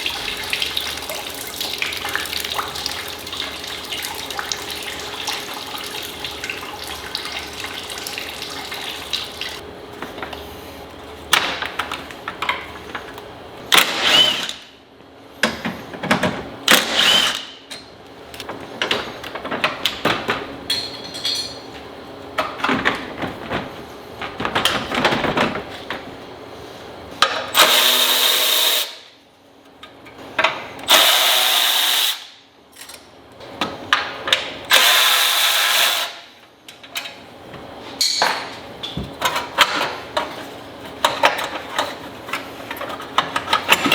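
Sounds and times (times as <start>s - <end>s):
metal tools clanking: 20.7s - 21.8s, 38.0s - 39.9s.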